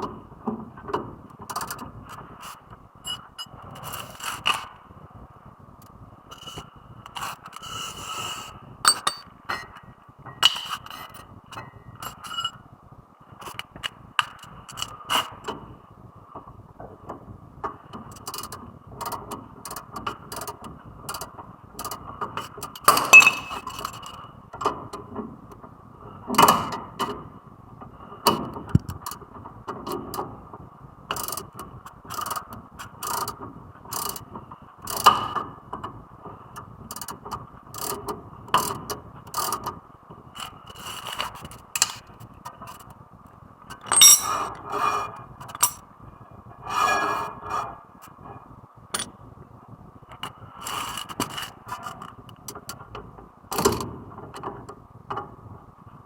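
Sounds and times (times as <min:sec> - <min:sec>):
metal hand tools clattering: 0:08.9 - 0:09.2, 0:23.2 - 0:23.6, 0:43.9 - 0:44.5, 0:45.6 - 0:45.8
metal knocks: 0:43.9 - 0:44.5.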